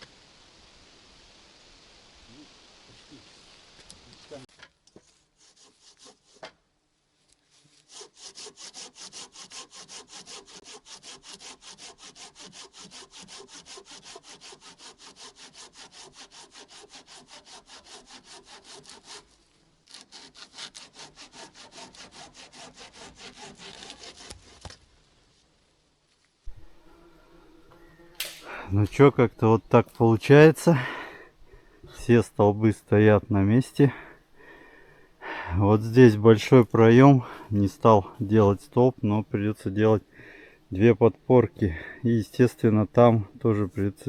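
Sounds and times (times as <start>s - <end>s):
hand saw cutting wood: 5.0s - 6.6s, 7.7s - 24.8s, 26.5s - 29.1s.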